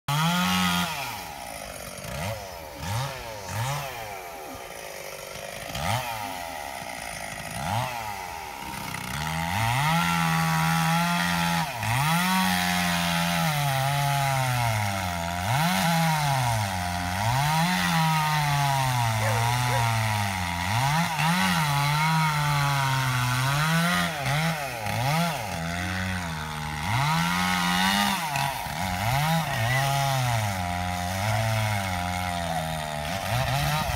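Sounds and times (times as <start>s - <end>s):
chainsaw cutting a tree: 0.1s - 33.9s
chainsaw idling with throttle blips: 0.1s - 33.9s.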